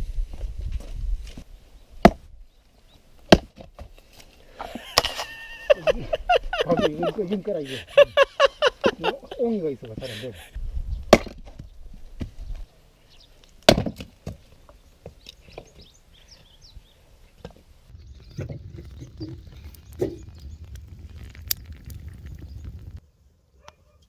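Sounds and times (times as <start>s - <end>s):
axe chopping firewood: 2.0s - 2.2s, 3.3s - 3.9s, 11.1s - 11.6s, 13.6s - 14.4s
low rumble: 17.9s - 23.0s.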